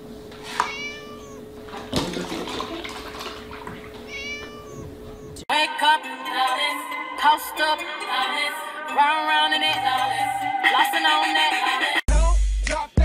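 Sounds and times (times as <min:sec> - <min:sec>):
kitten meowing: 0:00.5 - 0:01.5, 0:04.0 - 0:05.4
milk pouring into plastic tub: 0:01.7 - 0:04.0
music: 0:05.5 - 0:13.0.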